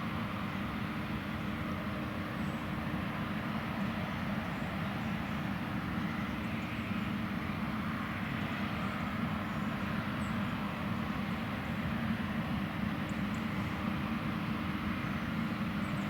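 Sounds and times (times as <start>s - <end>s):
combine harvester engine drone: 0.0s - 16.0s.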